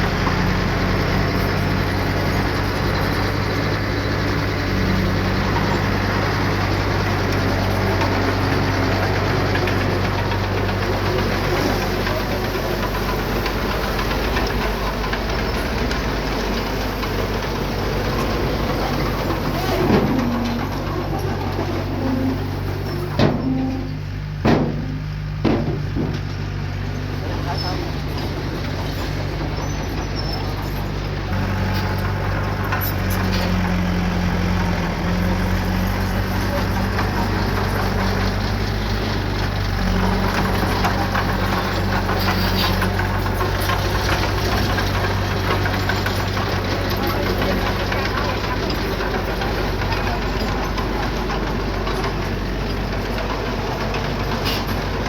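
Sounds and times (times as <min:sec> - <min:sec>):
diesel engine running: 0:00.0 - 0:55.0
sharp metallic bangs: 0:23.1 - 0:26.1.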